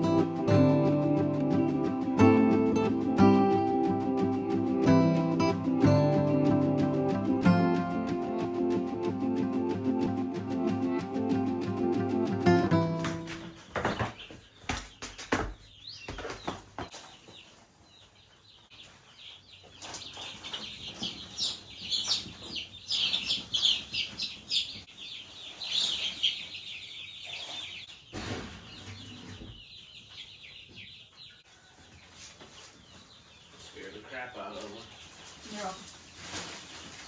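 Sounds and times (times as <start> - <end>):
chickens chirping and peeping: 0.0 - 37.0
chickens flapping wings: 5.7 - 12.4.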